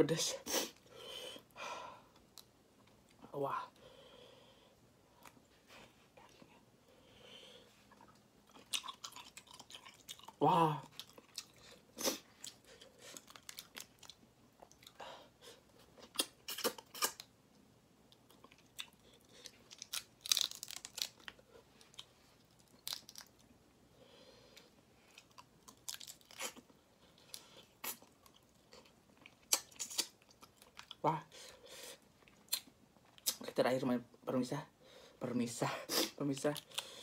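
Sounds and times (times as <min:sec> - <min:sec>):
chewing: 0:07.9 - 0:15.0, 0:18.1 - 0:23.4.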